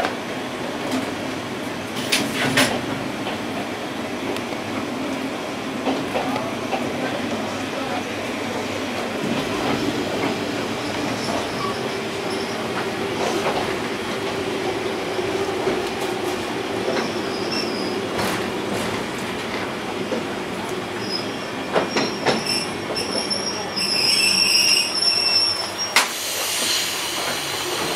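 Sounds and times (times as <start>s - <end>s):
railcar running drone: 0.0s - 27.9s
brake squeal: 21.0s - 27.2s
air hiss: 26.0s - 27.9s.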